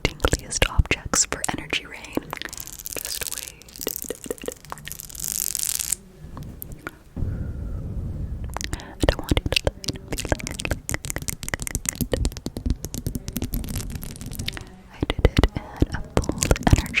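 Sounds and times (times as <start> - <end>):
scratchy rustling: 0.0 - 17.0
rapid clicks and taps: 8.6 - 17.0.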